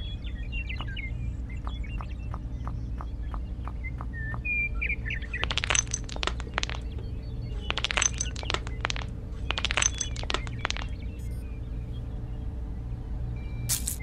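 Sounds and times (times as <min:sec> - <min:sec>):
pebbles clicking together: 0:05.3 - 0:11.3, 0:13.7 - 0:14.0.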